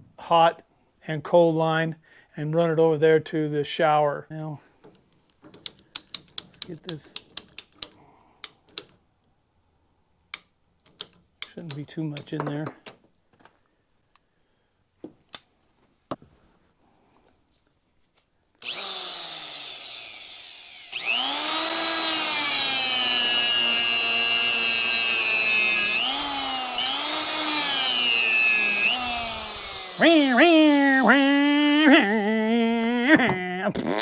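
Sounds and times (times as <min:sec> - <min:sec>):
power tool motor running: 0:18.6 - 0:32.5.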